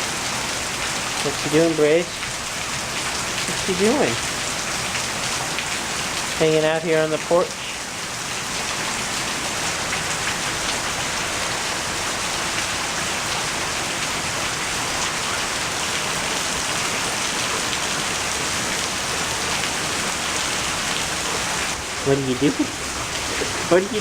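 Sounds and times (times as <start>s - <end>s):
rain pattering: 0.0s - 24.0s.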